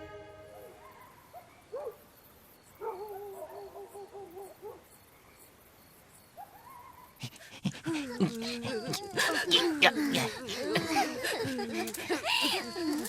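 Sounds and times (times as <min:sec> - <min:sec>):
cartoon whimper-like cries: 0:07.4 - 0:13.0.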